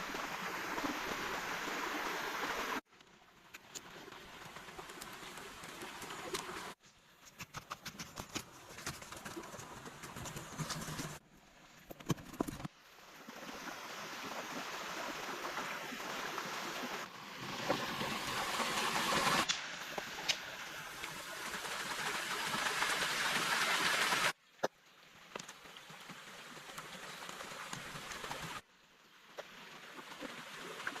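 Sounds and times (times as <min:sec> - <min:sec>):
stream water rushing: 0:00.0 - 0:02.8, 0:12.8 - 0:24.4.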